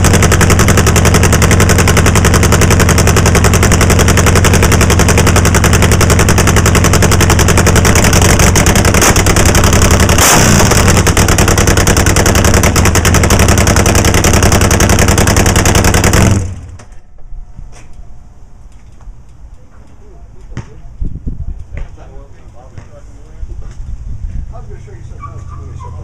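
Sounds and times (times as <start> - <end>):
motorcycle engine running loud: 0.0 - 16.9.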